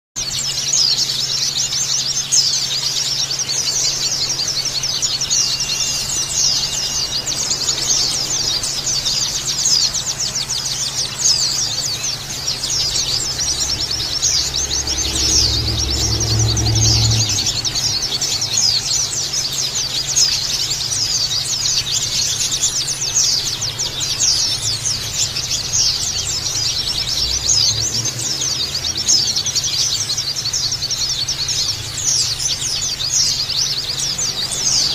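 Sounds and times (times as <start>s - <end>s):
birds twittering: 0.2s - 34.9s
steady low hum: 1.1s - 34.9s
low rumble: 12.4s - 19.1s.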